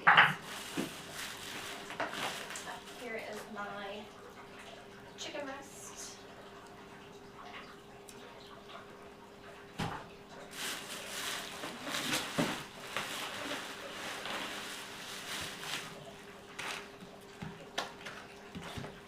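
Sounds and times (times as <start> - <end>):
faint steady hum: 0.0 - 19.0
plastic packaging rustling: 0.3 - 3.6, 10.4 - 17.0.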